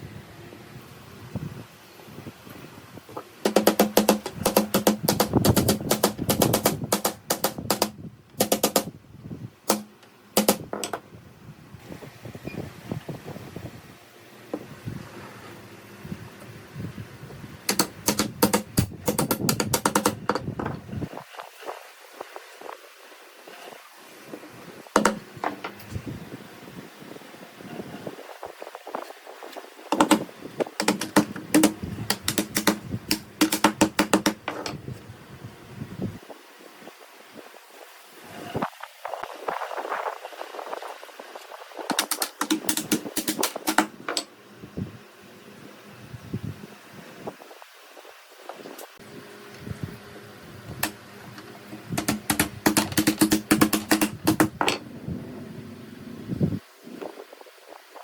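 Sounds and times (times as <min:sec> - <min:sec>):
rapid sharp taps: 0:03.5 - 0:08.9, 0:09.7 - 0:10.9, 0:17.7 - 0:20.4, 0:29.9 - 0:34.5, 0:41.9 - 0:44.3, 0:52.0 - 0:54.6.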